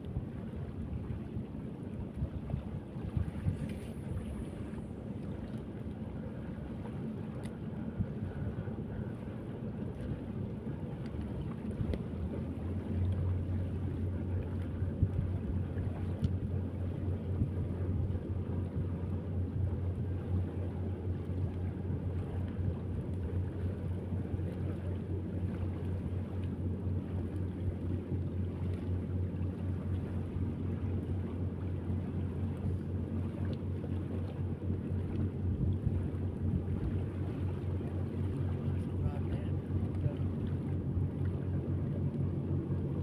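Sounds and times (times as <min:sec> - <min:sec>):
low engine drone: 0:00.0 - 0:43.0
wind noise on microphone: 0:02.0 - 0:04.7.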